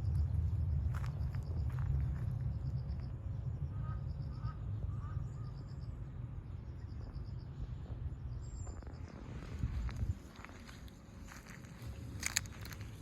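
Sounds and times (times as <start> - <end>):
steady low rumble: 0.0 - 13.0
faint bird calls: 3.7 - 5.9.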